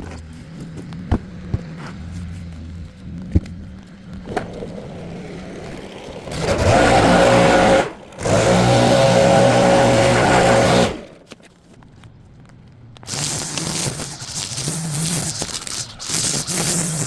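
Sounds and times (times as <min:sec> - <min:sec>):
small engine revving: 0:04.2 - 0:11.2, 0:13.1 - 0:17.0.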